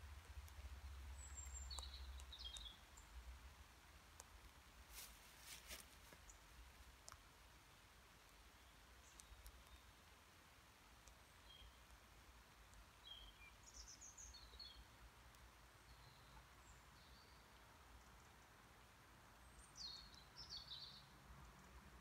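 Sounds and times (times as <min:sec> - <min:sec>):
faint bird chirps: 0:13.0 - 0:15.1, 0:19.4 - 0:21.8.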